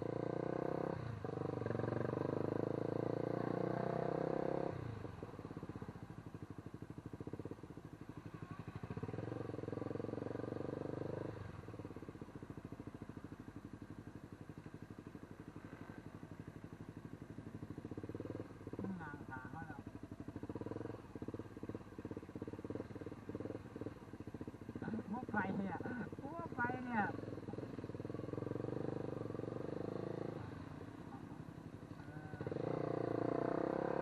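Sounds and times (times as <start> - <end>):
engine running with fast pulse: 0.0 - 34.0.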